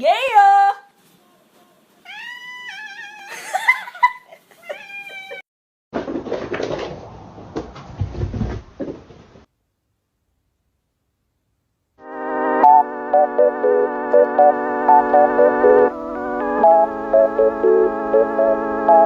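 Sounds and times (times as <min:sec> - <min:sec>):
cat meowing: 0:01.6 - 0:03.4, 0:04.6 - 0:05.4
noise with knocks: 0:06.0 - 0:09.3.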